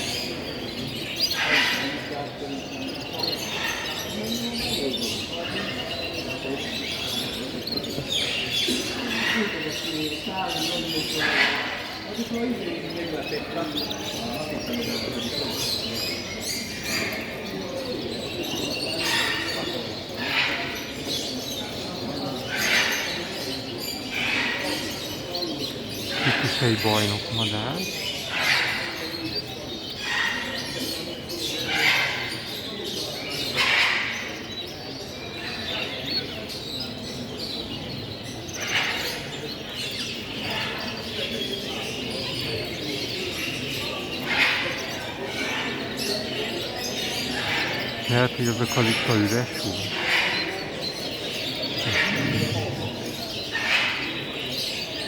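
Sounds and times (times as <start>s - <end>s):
crowd chatter: 0.0s - 28.2s, 47.4s - 54.5s
birds chirping and calling: 0.0s - 55.0s.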